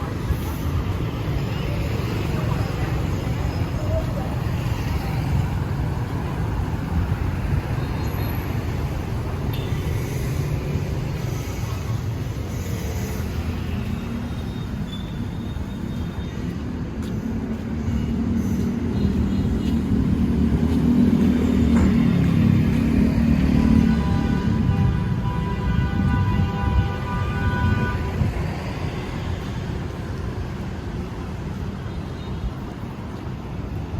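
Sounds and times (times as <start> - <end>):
street traffic: 0.0 - 33.9.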